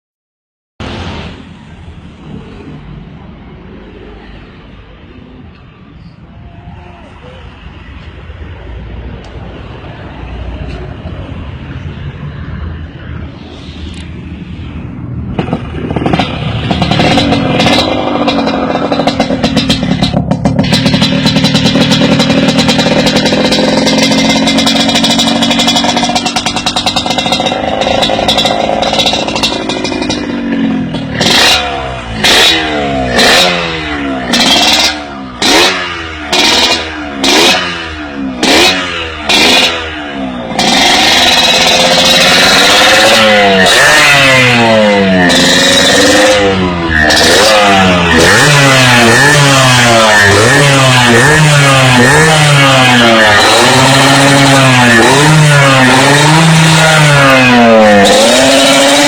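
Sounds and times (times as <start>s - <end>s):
two-stroke motorcycle engine revving: 15.3s - 59.0s.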